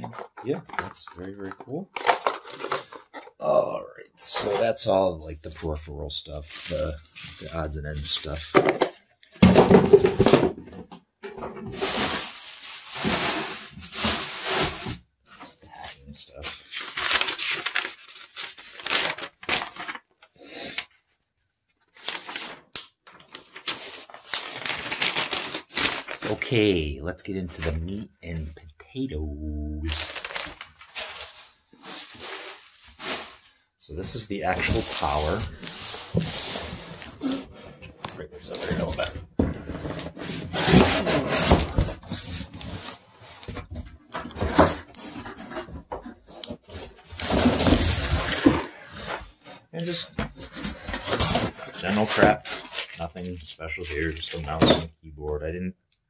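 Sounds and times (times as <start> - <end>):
packaging rustling and clicking: 0.0 - 3.4, 22.0 - 26.4
cardboard box scraping and rustling: 34.6 - 52.9.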